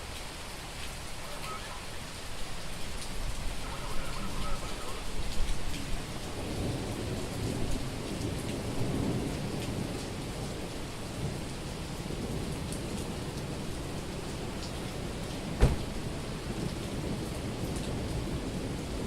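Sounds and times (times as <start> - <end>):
heavy rain pouring: 0.0 - 19.0
low roll of thunder: 5.2 - 19.0.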